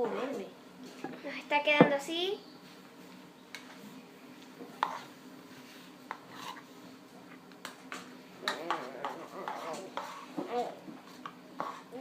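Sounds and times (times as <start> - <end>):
slime being stirred: 8.5 - 12.0.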